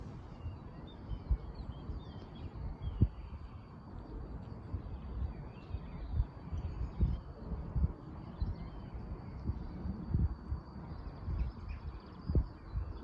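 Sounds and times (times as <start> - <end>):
small birds chirping: 0.1 - 3.9, 4.7 - 13.0.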